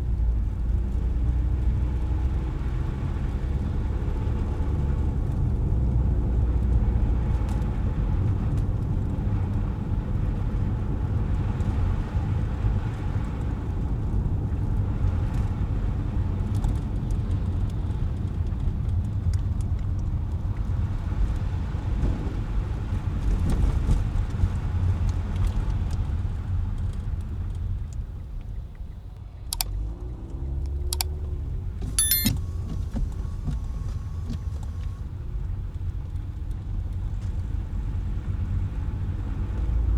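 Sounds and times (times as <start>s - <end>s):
car engine and tyre rumble: 0.0s - 39.9s
short ringing tone: 32.0s - 32.3s
sharp clicks: 32.0s - 32.4s.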